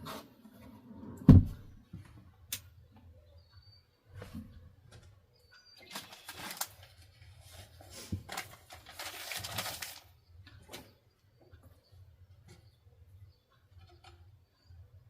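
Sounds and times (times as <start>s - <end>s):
rustling and clattering of packing: 5.8s - 10.0s.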